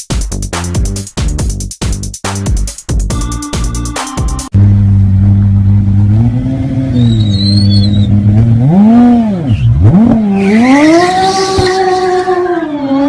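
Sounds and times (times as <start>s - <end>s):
car engine revving: 4.6s - 13.0s.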